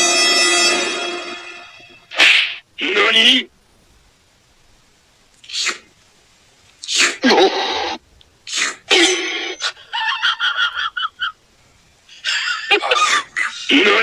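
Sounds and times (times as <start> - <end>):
cat sneezing: 2.1 - 2.6, 5.4 - 5.9, 6.8 - 9.8.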